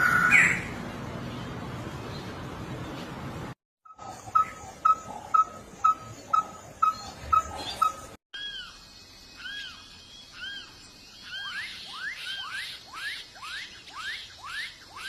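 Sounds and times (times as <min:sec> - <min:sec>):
bird whistled call: 0:04.3 - 0:08.8, 0:09.4 - 0:15.0.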